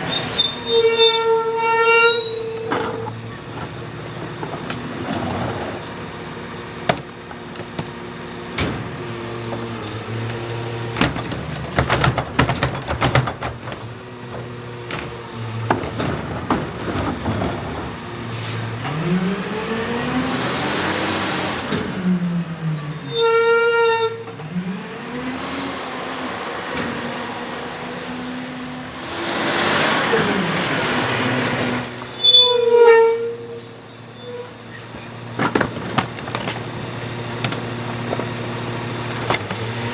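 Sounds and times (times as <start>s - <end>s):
short squeals: 0.0s - 3.2s, 22.8s - 24.3s, 29.0s - 34.9s
bins clanking and knocking: 2.7s - 6.0s, 6.8s - 19.1s, 34.9s - 39.9s
engine revving: 29.0s - 31.8s
air hissing: 29.0s - 32.2s.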